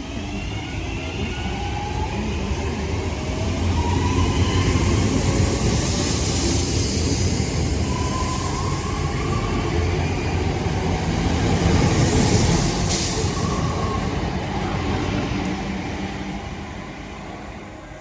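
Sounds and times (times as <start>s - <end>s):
electric train rumble: 0.0s - 18.0s.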